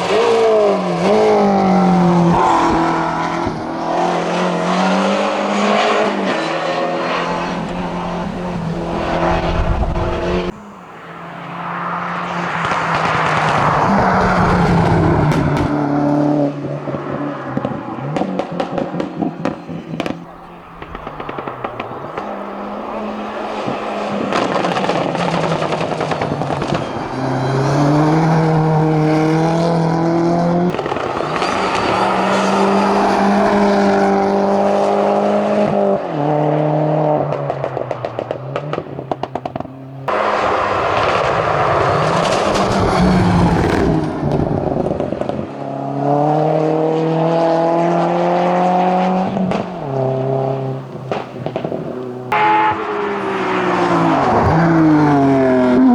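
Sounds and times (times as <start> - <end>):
racing car engine at full throttle: 0.0 - 55.9
crackling exhaust pops: 12.6 - 15.8, 17.6 - 23.0, 23.6 - 27.0, 30.7 - 32.3, 37.3 - 40.2, 50.9 - 52.1.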